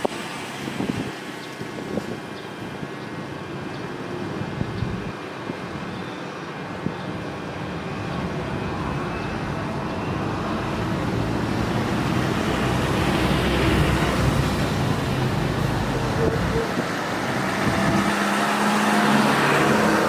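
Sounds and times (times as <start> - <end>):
jet engines roaring: 6.6 - 20.0.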